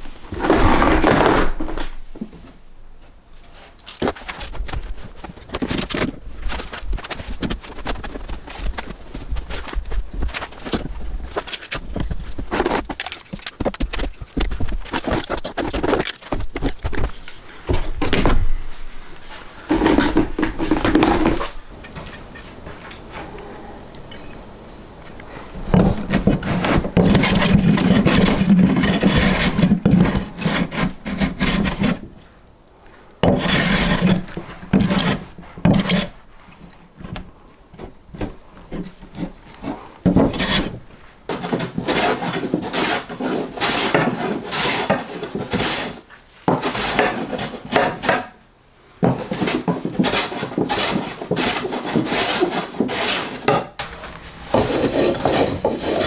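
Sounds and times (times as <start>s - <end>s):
wood being rasped by hand: 25.1s - 32.1s, 33.2s - 36.2s, 39.6s - 48.0s, 49.1s - 53.6s, 54.5s - 56.0s.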